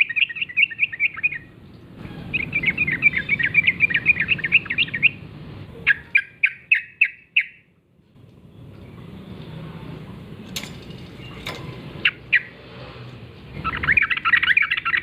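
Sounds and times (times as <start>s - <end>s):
bird bubbling chattering song: 0.0s - 5.2s.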